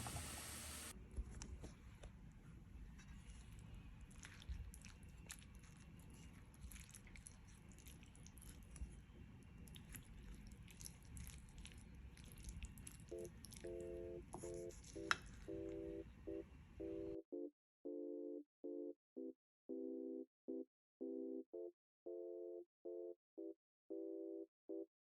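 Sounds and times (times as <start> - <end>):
low room hum: 0.0 - 17.2.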